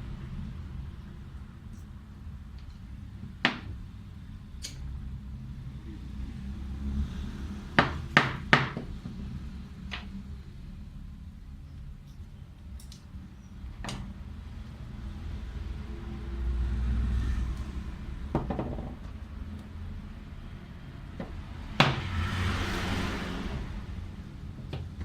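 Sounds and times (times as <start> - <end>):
hard objects knocking: 18.3 - 19.2.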